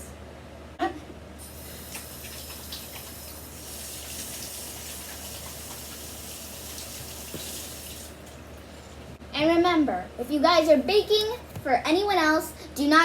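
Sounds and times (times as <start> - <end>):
tap water splashing on hands: 3.9 - 8.4.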